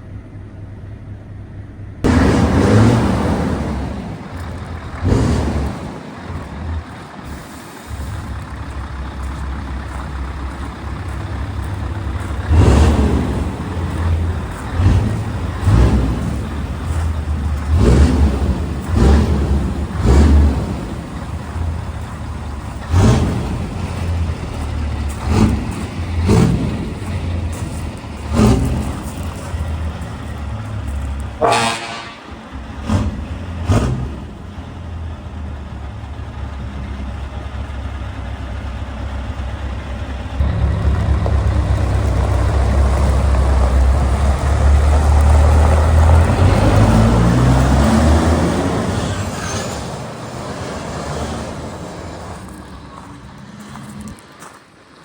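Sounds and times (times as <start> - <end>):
diesel truck engine running: 0.0 - 55.0
truck horn toot: 31.3 - 33.0.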